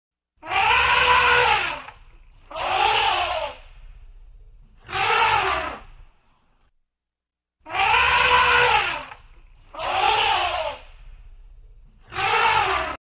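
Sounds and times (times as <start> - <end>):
animal calling: 0.4 - 6.1, 7.6 - 13.0
low rumble: 3.2 - 4.9, 10.8 - 12.1.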